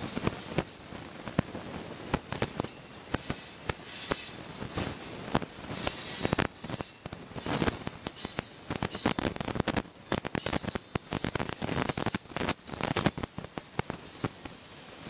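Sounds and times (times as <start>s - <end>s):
train wheels clacking over rail joints: 0.0s - 14.6s
high-pitched wheel squeal: 3.1s - 5.0s, 5.7s - 15.0s.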